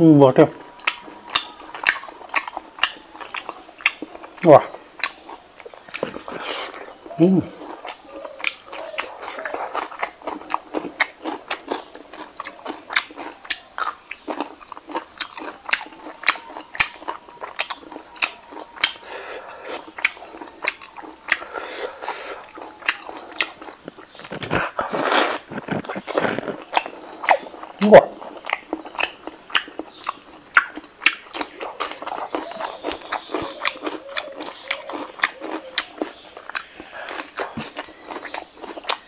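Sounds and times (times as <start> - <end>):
man chewing food: 0.0 - 39.0.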